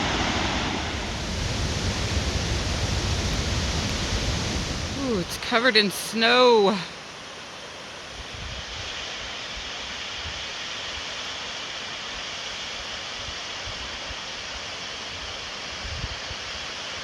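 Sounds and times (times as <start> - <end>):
wind rumbling on microphone: 0.0 - 5.4, 8.1 - 10.5, 15.2 - 16.6
waterfall rushing: 0.0 - 17.0.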